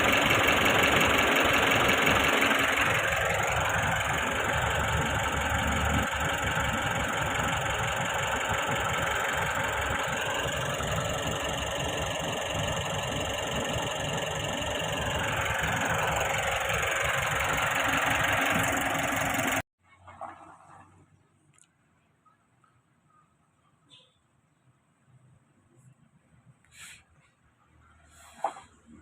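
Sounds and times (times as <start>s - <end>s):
van engine idling: 0.0s - 19.7s.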